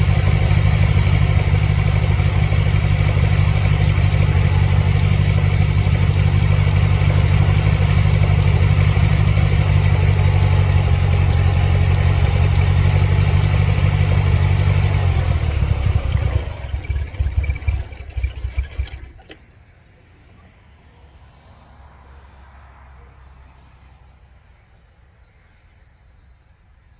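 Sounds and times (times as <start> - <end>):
car engine running unevenly: 0.0 - 19.4.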